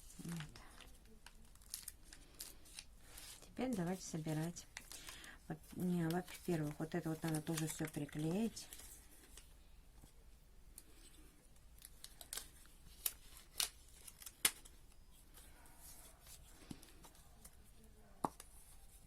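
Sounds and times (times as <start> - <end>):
paper rustling: 0.0 - 9.5.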